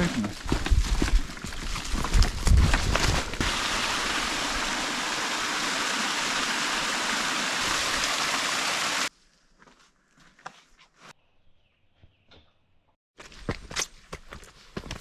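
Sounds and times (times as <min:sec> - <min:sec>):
rushing stream water: 0:03.4 - 0:09.1.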